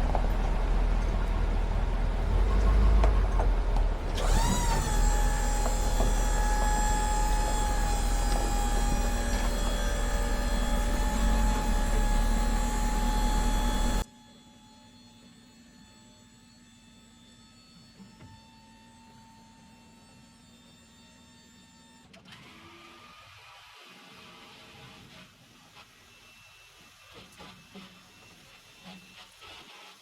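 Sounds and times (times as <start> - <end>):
steady whine: 0.0 - 14.0
truck engine rumbling: 0.0 - 14.0.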